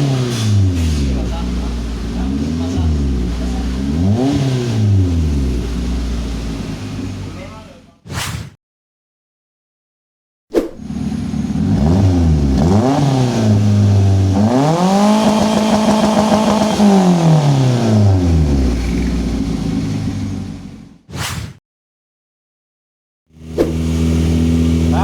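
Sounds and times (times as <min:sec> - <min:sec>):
car engine revving: 0:00.0 - 0:07.6, 0:10.8 - 0:21.0.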